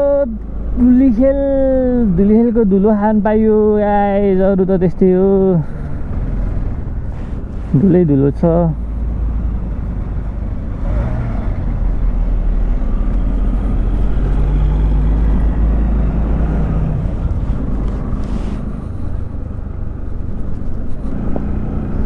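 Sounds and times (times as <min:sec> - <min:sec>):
wind and road noise rumble: 0:00.0 - 0:22.0
motorcycle engine running: 0:05.4 - 0:22.0.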